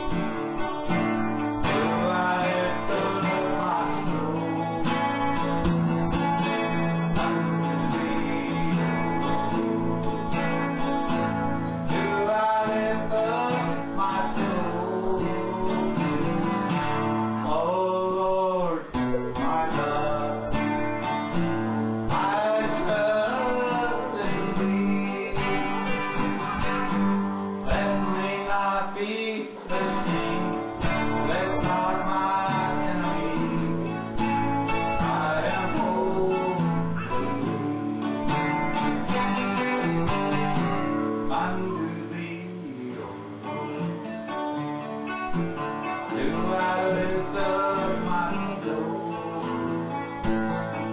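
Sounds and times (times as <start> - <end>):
person singing: 0.0 - 44.4, 45.3 - 50.9
acoustic guitar plucked and strummed: 0.0 - 50.9.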